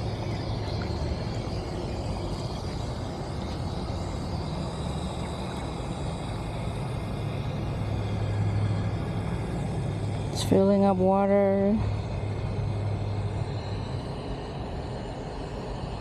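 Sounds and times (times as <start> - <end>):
water running from hose into bucket: 0.0 - 8.4
low hum: 0.0 - 16.0.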